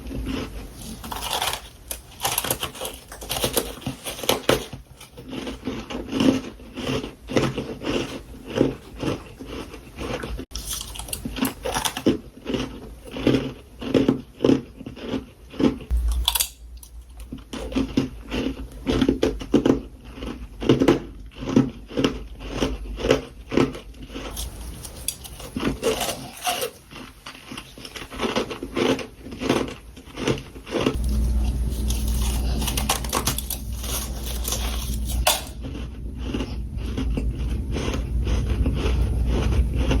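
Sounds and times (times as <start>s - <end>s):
person crunching frost: 0.0s - 40.0s
deep steady hum: 15.9s - 18.8s, 31.0s - 40.0s.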